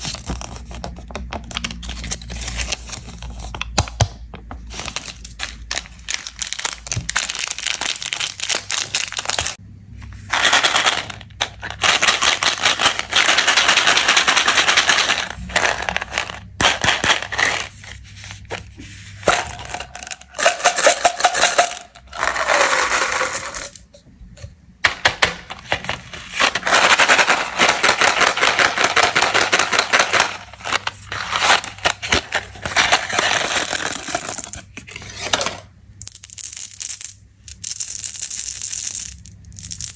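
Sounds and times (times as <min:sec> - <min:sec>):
plastic wrappers crinkling: 0:04.7 - 0:09.6, 0:10.2 - 0:24.0, 0:25.2 - 0:35.4.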